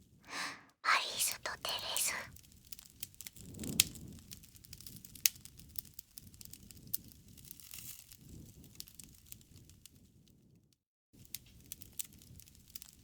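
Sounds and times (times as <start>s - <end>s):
wood fire crackling: 2.4s - 9.8s, 11.2s - 13.0s.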